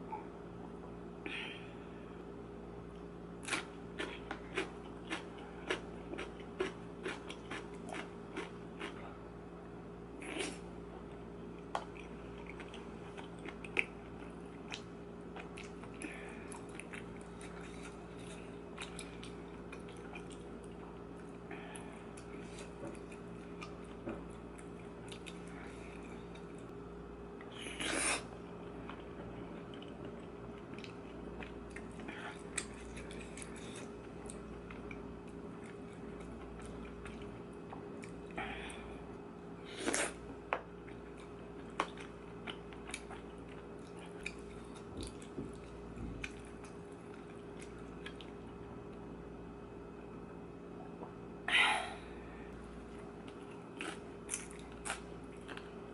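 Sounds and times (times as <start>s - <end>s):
steady low hum: 0.0s - 55.9s
chewing with wet mouth clicks: 2.9s - 9.0s, 11.6s - 20.9s, 22.1s - 25.5s, 28.7s - 38.4s, 39.9s - 48.6s, 53.2s - 55.7s.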